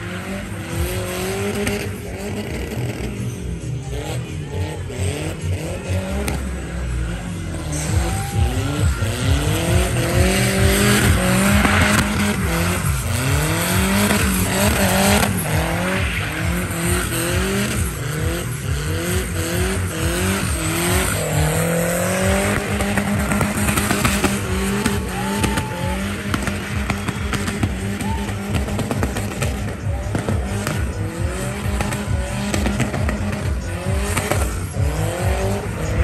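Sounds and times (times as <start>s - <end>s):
car engine revving: 0.0s - 36.0s
tyres squealing on asphalt: 0.0s - 36.0s.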